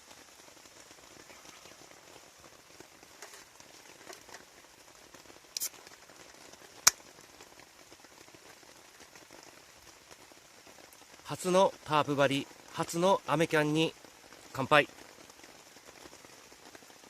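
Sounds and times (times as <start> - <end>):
steady rain falling: 0.0 - 17.0
short hiss: 5.6 - 6.0.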